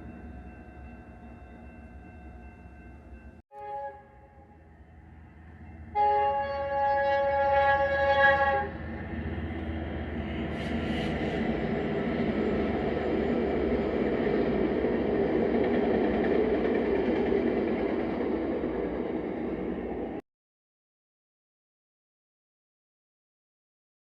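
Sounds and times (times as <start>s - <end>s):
train rumbling past: 0.0s - 20.2s
train horn blast: 3.5s - 4.8s, 5.9s - 8.9s.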